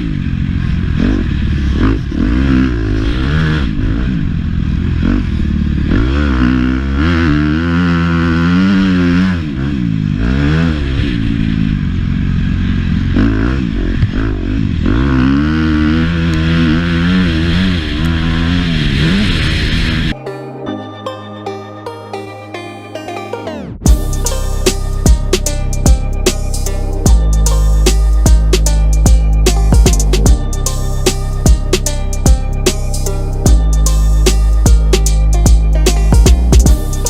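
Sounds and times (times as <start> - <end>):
motocross bike engine revving: 0.0 - 20.2
music: 20.2 - 37.0.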